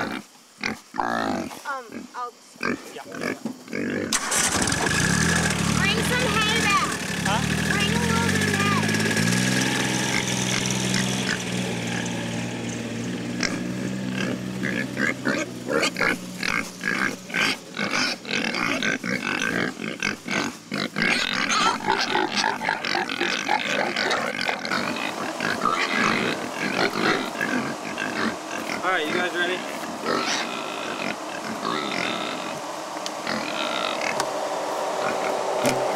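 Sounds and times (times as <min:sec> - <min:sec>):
pigs grunting and squealing: 0:00.0 - 0:34.3, 0:35.0 - 0:35.9
vehicle engine running: 0:04.2 - 0:19.5, 0:23.7 - 0:35.9.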